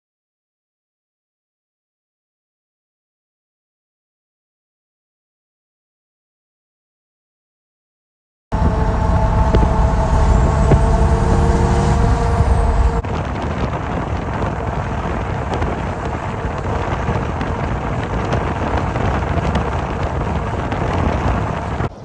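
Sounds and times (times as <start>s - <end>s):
rushing noise of vehicles: 8.5s - 22.0s
truck engine rumbling: 8.5s - 22.0s.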